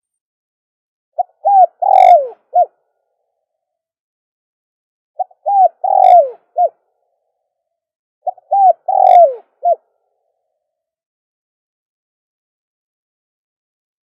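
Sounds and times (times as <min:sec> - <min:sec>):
dove cooing: 0:01.2 - 0:02.8, 0:05.2 - 0:06.8, 0:08.2 - 0:09.8.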